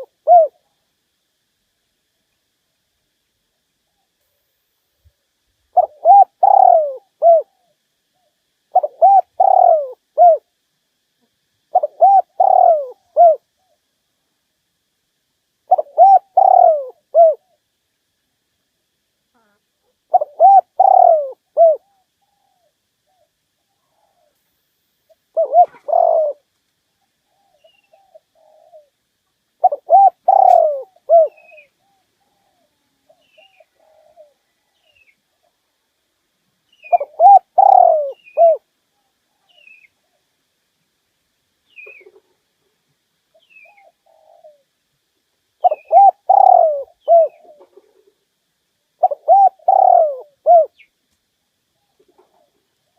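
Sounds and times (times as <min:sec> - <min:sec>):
dove cooing: 0:00.0 - 0:00.8, 0:05.7 - 0:10.6, 0:11.2 - 0:13.8, 0:15.6 - 0:17.6, 0:19.4 - 0:24.4, 0:25.3 - 0:29.0, 0:29.6 - 0:35.4, 0:36.8 - 0:40.3, 0:43.3 - 0:44.7, 0:45.6 - 0:48.3, 0:49.0 - 0:50.9.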